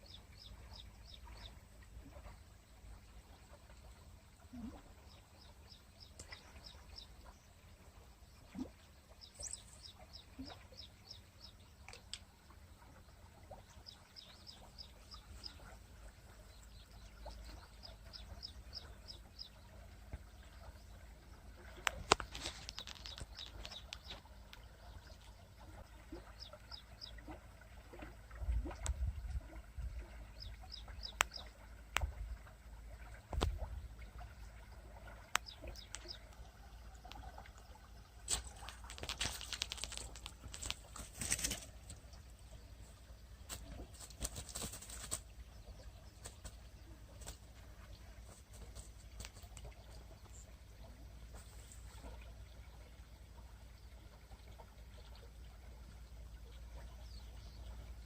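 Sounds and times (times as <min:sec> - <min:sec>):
small bird chirping: 0:08.4 - 0:21.0, 0:21.6 - 0:27.4, 0:30.3 - 0:31.6, 0:35.3 - 0:37.4, 0:38.3 - 0:51.8.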